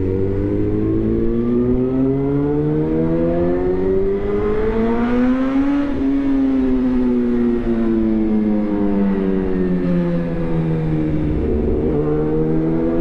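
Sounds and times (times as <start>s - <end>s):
motorcycle engine accelerating: 9.7s - 13.0s.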